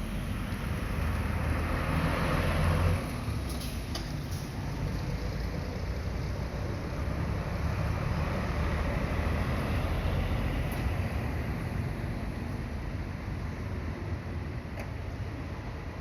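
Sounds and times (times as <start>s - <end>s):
bus passing by: 0.0s - 16.0s.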